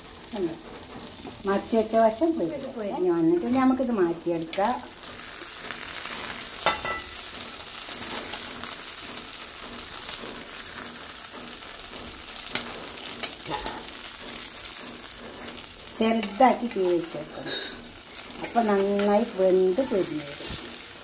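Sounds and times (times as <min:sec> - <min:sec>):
shrimp sizzling in a pan: 0:00.0 - 0:21.0
metal spatula scraping a pan: 0:04.4 - 0:21.0.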